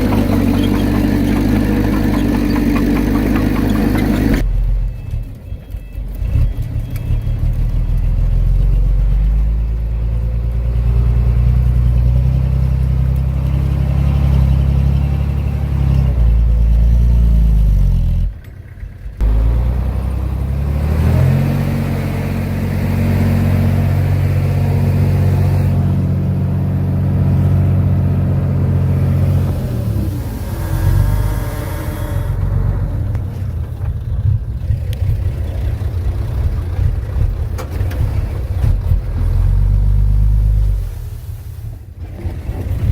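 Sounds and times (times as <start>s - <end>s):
heavy diesel engine revving: 0.0s - 4.5s, 6.2s - 33.6s.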